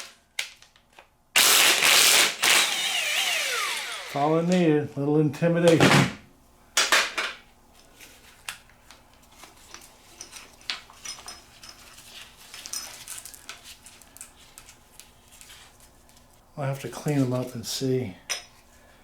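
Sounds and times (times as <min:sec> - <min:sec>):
metal parts and tools clinking: 0:10.0 - 0:14.7.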